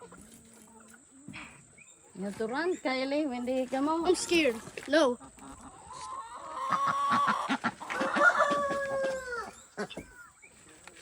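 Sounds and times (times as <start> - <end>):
chicken clucking: 0.0 - 2.7, 3.3 - 10.8
chicken drawn-out calls: 4.1 - 10.4.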